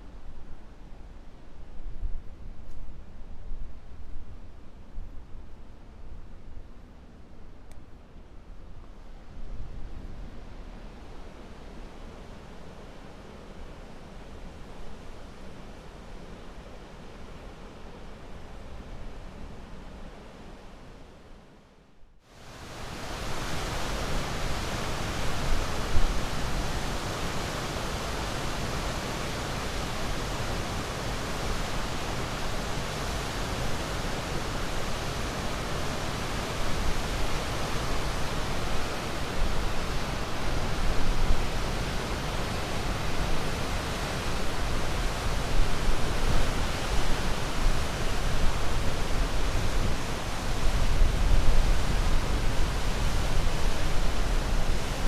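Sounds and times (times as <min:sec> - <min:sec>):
ocean surf rushing: 0:22.6 - 0:55.0.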